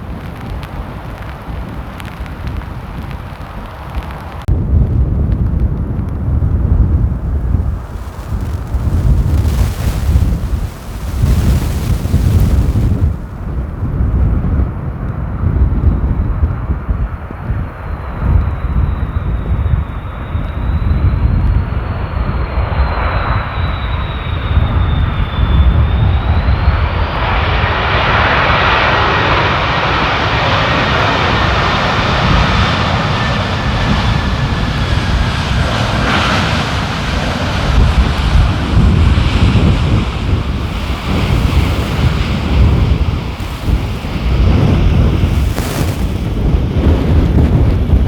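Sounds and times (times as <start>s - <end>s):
wind buffeting microphone: 0.0s - 22.5s, 29.4s - 48.0s
jet airliner passing: 6.3s - 15.4s, 21.8s - 48.0s
high engine whine: 7.0s - 13.8s.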